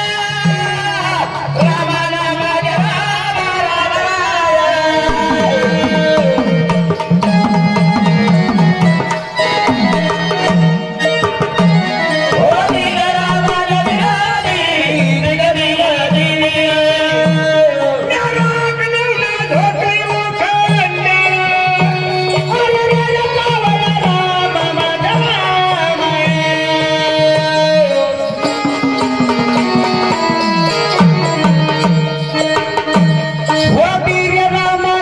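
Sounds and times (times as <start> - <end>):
person singing: 0.0 - 35.0
wavering melodic line: 5.0 - 12.9
hand drum rhythm: 5.0 - 34.7.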